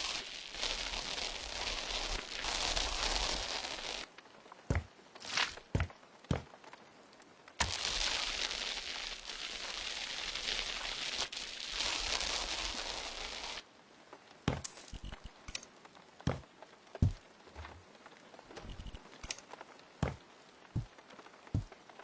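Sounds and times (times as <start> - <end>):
knocks: 20.0 - 20.2.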